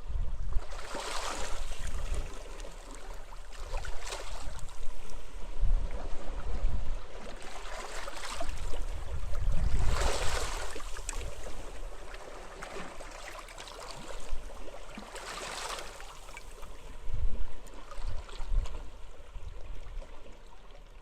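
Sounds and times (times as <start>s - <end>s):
wind rumbling on microphone: 0.0s - 12.3s, 16.6s - 20.4s.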